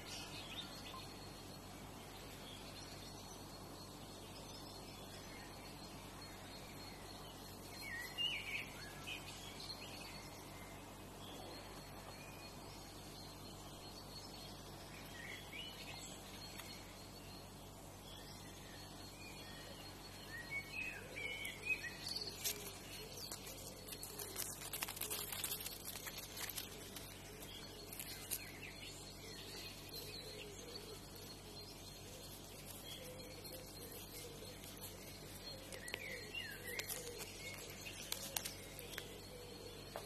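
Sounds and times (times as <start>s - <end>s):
birds chirping: 0.0s - 40.0s
thin steady high tone: 0.0s - 40.0s
sharp crackles: 21.4s - 29.2s, 32.5s - 39.2s.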